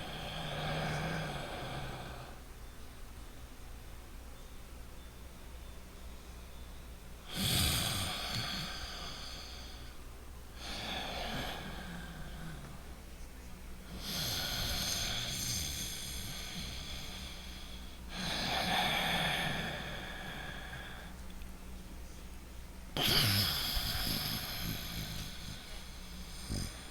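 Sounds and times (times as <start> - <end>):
man breathing through the nose: 7.3 - 10.0, 10.6 - 12.9, 13.9 - 21.2, 23.0 - 26.9.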